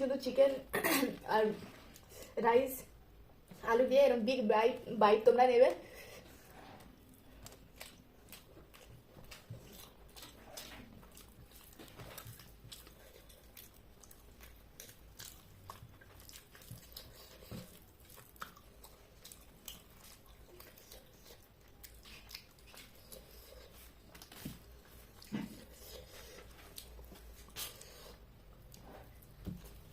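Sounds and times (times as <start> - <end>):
faint chewing: 5.7 - 29.9.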